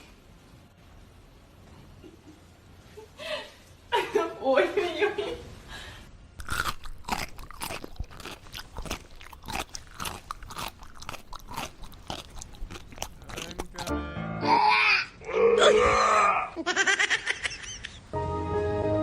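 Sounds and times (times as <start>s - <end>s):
animal crunching and chewing: 6.4s - 13.9s.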